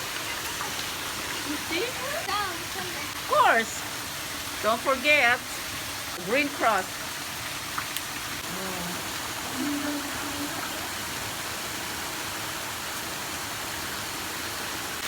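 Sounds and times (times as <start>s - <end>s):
rain falling: 0.0s - 15.0s
faint voices: 8.4s - 11.1s.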